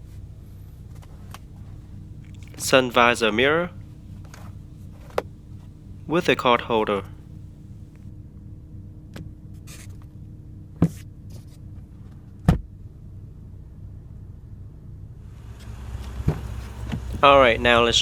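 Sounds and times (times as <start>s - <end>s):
steady low hum: 0.0s - 8.0s, 15.1s - 18.0s.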